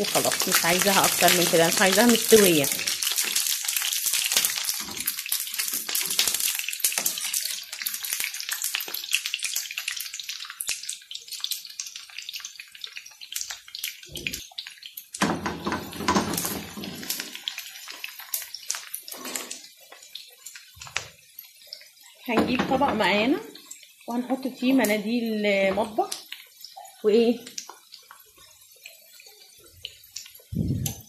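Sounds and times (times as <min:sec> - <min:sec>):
metal tongs turning food: 0:00.0 - 0:08.9
potatoes sizzling in oil: 0:00.0 - 0:31.0.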